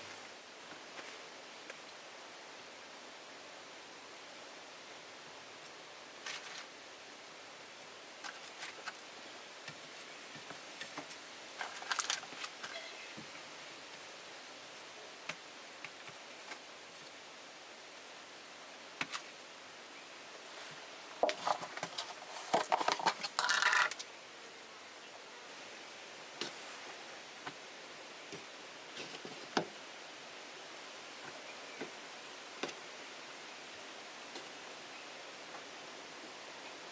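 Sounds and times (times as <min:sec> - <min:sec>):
steady hiss: 0:00.0 - 0:36.9
objects clicking and clinking: 0:22.6 - 0:24.0.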